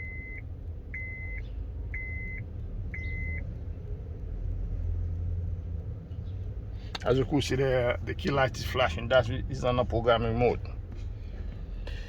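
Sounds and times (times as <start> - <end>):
electronic beeps: 0.0 - 0.4, 1.0 - 1.4, 3.0 - 3.4
low steady hum: 0.0 - 3.6.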